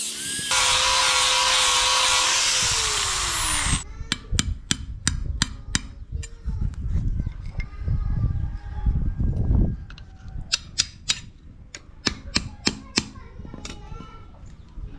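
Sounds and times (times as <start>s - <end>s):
power tool running: 0.0s - 3.8s.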